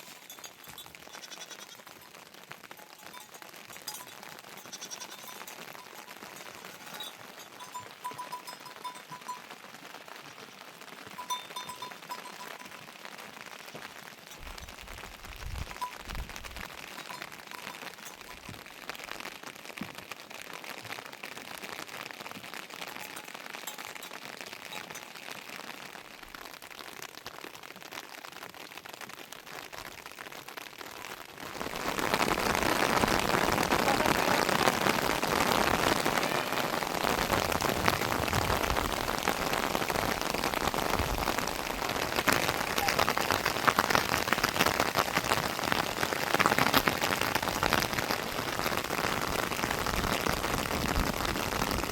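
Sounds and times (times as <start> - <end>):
rain falling: 0.0 - 51.9.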